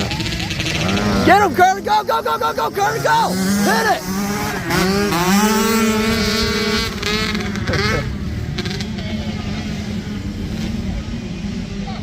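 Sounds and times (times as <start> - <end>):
dirt bike engines racing: 0.0 - 12.0
spectator shouting: 1.3 - 4.1.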